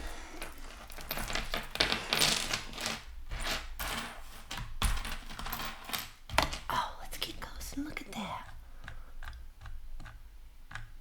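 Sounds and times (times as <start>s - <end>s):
jewelry and chain clinking: 0.0s - 8.5s.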